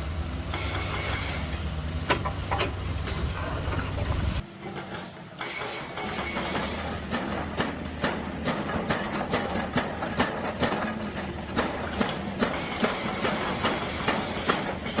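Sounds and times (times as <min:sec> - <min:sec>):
excavator engine hum: 0:00.0 - 0:15.0
hydraulic rock breaker hammering: 0:04.8 - 0:15.0.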